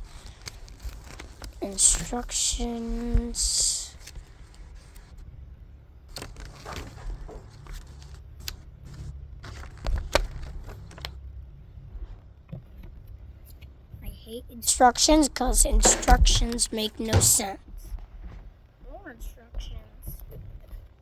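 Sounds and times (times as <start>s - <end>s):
paper rustling: 0.0s - 5.3s, 6.1s - 11.2s, 14.8s - 17.6s.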